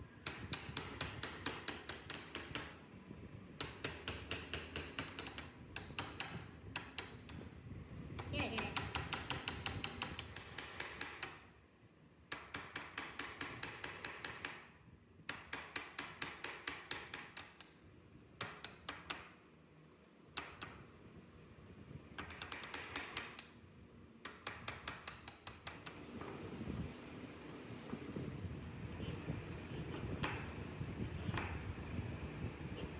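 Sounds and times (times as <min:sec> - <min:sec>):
mallet tapping chisel into wood: 0:00.2 - 0:02.8, 0:03.6 - 0:07.4, 0:08.2 - 0:11.4, 0:12.3 - 0:14.7, 0:15.3 - 0:17.7, 0:18.4 - 0:19.4, 0:20.4 - 0:20.8, 0:22.2 - 0:23.5, 0:24.2 - 0:26.3, 0:30.2 - 0:30.5.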